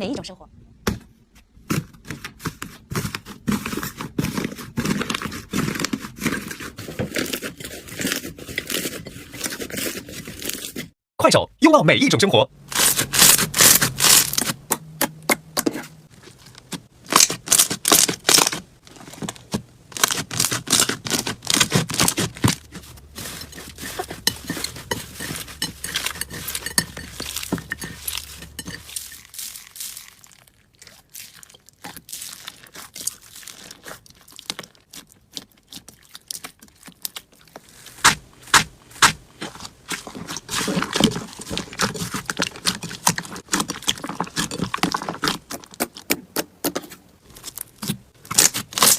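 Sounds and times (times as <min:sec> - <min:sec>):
slime crackling and popping: 0:16.6 - 0:18.9, 0:20.0 - 0:22.8, 0:25.9 - 0:46.1, 0:47.4 - 0:48.9.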